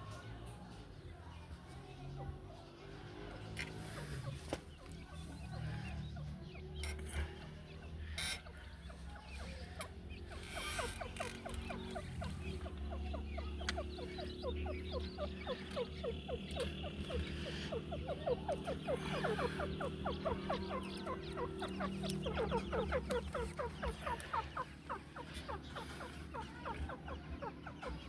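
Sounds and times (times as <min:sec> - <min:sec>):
steady low hum: 0:03.8 - 0:28.0
francolin calling: 0:07.9 - 0:28.0.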